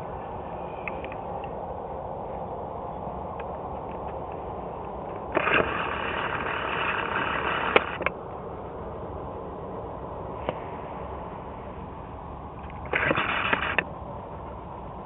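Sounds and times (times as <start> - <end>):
jet engine noise: 0.0 - 15.0
sharp clicks: 3.4 - 8.2, 12.6 - 13.9
loud burst of noise: 5.2 - 8.1, 12.6 - 14.0.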